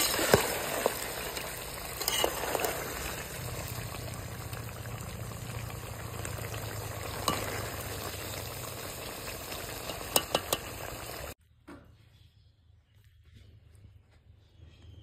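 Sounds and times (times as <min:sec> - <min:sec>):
chicken sizzling in a pot: 0:00.0 - 0:11.4.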